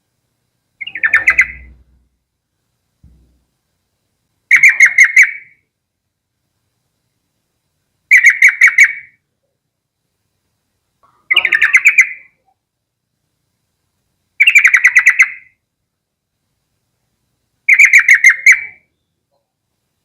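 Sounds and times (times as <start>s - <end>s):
bulbul singing: 0.8s - 2.0s, 14.4s - 15.6s.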